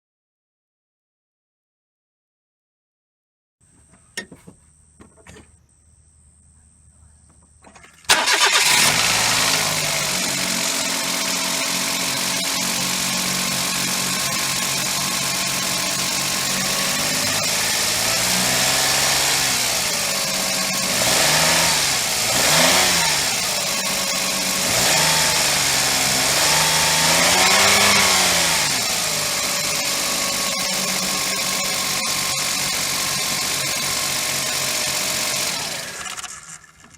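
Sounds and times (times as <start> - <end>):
car engine revving and idling: 8.2 - 36.6.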